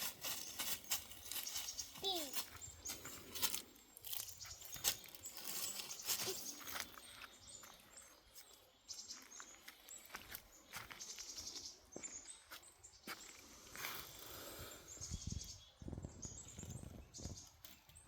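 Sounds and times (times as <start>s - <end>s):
dry vegetation rustling: 0.0s - 7.2s
faint bird chirps: 0.2s - 18.0s.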